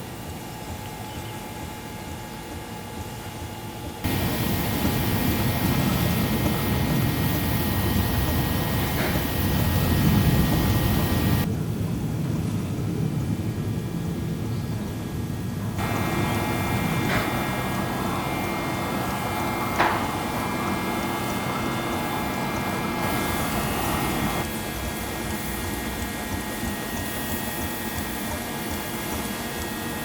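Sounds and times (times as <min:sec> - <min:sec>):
steam tractor running: 0:02.4 - 0:11.5, 0:15.8 - 0:30.0.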